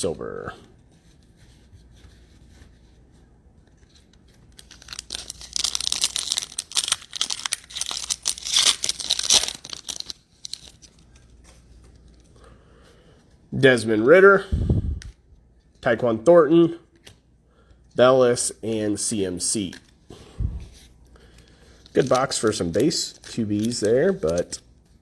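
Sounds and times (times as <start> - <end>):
foil wrapper tearing and crinkling: 4.5 - 11.0, 21.8 - 24.6.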